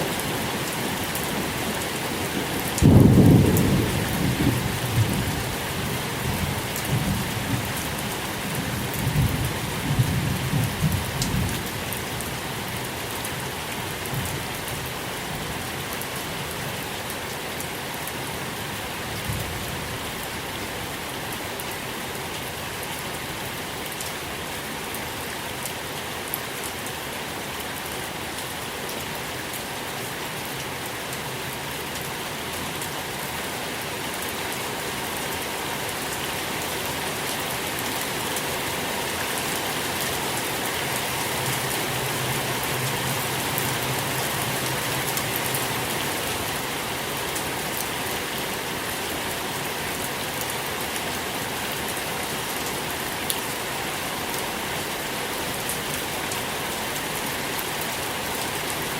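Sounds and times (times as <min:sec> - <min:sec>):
steady rain patter: 0:00.0 - 0:58.9
low rumble of thunder: 0:02.8 - 0:05.5.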